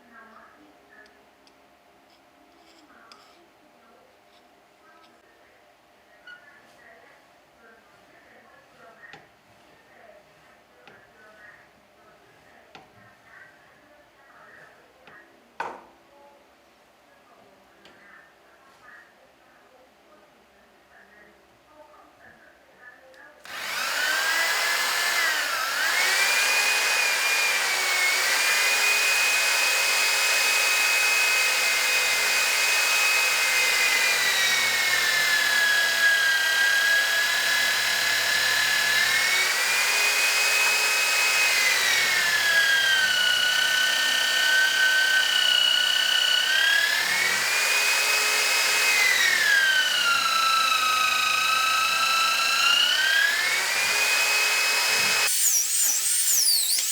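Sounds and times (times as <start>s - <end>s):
electric drill whining: 23.5s - 56.9s.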